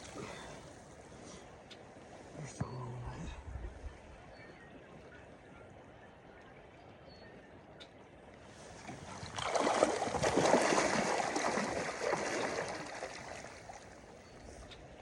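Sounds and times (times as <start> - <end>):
water splashing and sloshing: 8.3 - 15.0.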